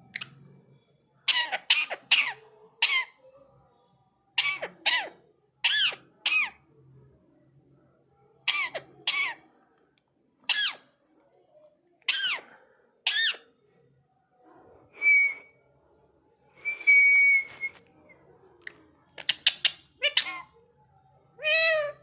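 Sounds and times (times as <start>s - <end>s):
parakeet chattering: 1.2s - 3.2s, 4.4s - 6.6s, 8.4s - 9.4s, 10.5s - 10.9s, 12.1s - 13.5s, 18.6s - 20.6s
parakeet screeching: 1.3s - 3.2s, 4.4s - 6.6s, 8.5s - 9.4s, 10.5s - 10.8s, 12.1s - 12.5s, 13.1s - 13.5s, 19.2s - 20.5s, 21.4s - 22.0s.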